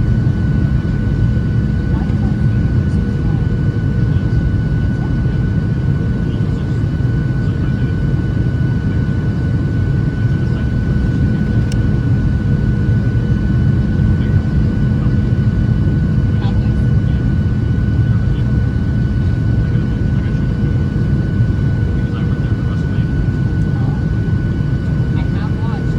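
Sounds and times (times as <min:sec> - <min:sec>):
airplane cabin engine rumble: 0:00.0 - 0:25.9
turbofan whine: 0:00.0 - 0:25.9.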